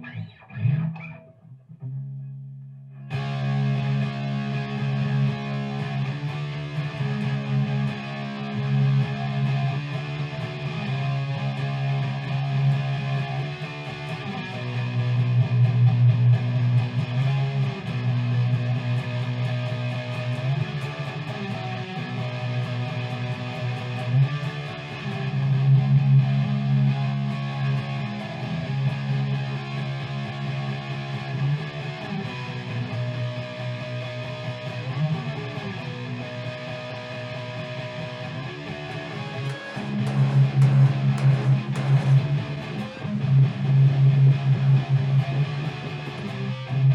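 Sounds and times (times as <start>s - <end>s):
electric guitar strumming: 0.0s - 46.9s
percussion: 38.9s - 45.5s
bass line: 39.5s - 45.5s.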